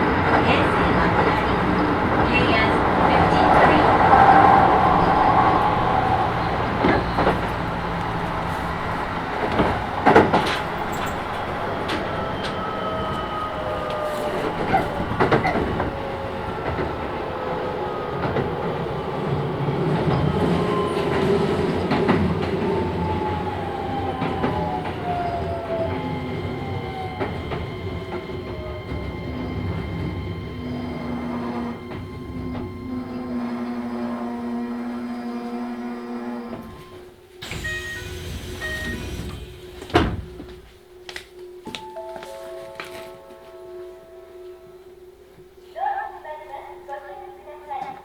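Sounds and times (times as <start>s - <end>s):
electric train motor whine: 0.0s - 40.8s
wheels clacking over rail joints: 0.0s - 40.8s
train wheels rumbling: 0.0s - 41.6s.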